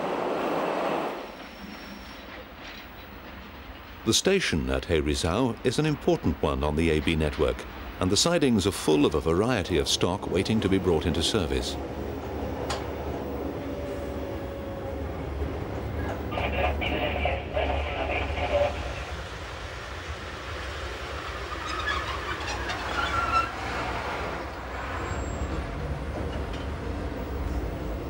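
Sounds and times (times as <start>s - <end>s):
electric train rumbling: 0.0s - 28.0s
wheels squealing: 21.0s - 26.7s.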